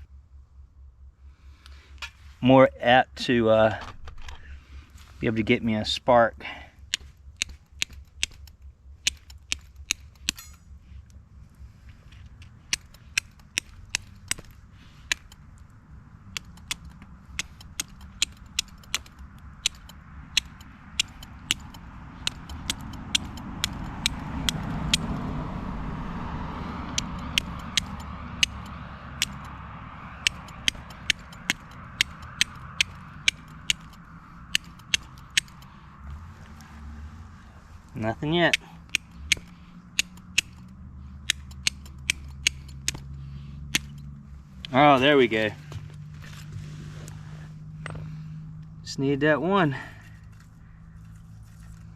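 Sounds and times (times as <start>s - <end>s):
flint and steel striking: 6.8s - 11.2s, 12.2s - 15.7s, 16.3s - 25.2s, 27.0s - 29.6s, 30.2s - 35.8s, 38.5s - 44.8s.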